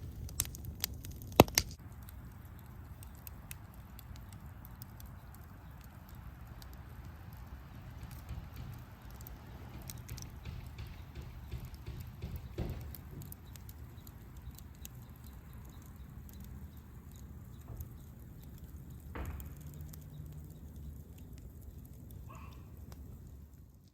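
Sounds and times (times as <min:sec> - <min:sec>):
campfire crackling: 0:00.0 - 0:23.9
dull knocks: 0:08.0 - 0:13.6, 0:19.1 - 0:20.0.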